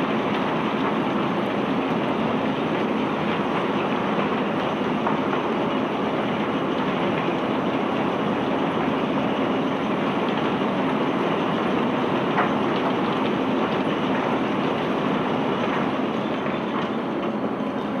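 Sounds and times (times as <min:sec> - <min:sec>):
unloading machinery running: 0:00.0 - 0:18.0.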